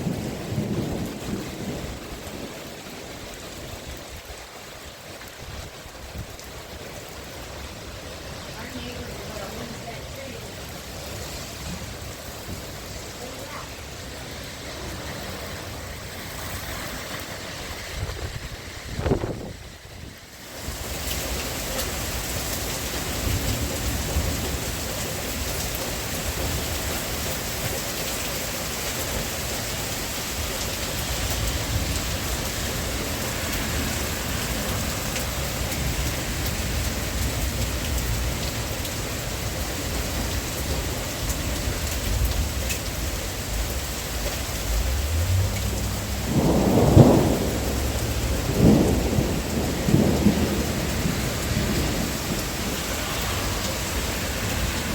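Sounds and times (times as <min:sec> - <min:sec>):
heavy rain hissing: 0:00.0 - 0:54.9
low rumbles: 0:41.8 - 0:54.9.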